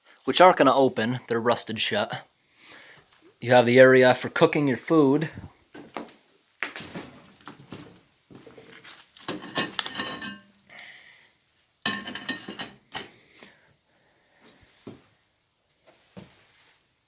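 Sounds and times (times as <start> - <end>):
metal stove parts clanking: 9.2 - 10.6, 11.8 - 13.2
metallic ring: 9.3 - 10.6, 11.9 - 13.1.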